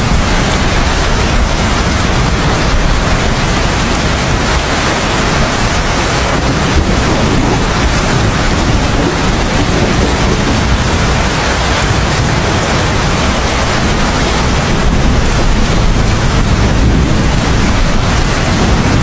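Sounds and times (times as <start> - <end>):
heavy rain falling: 0.0 - 19.0
deep rumble: 5.4 - 12.6.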